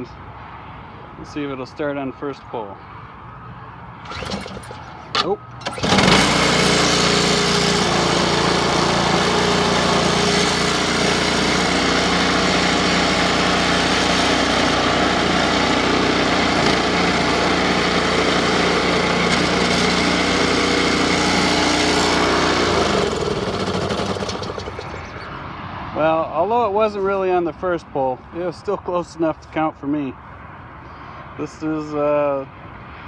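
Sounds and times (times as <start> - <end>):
snowblower engine running: 4.0 - 25.3.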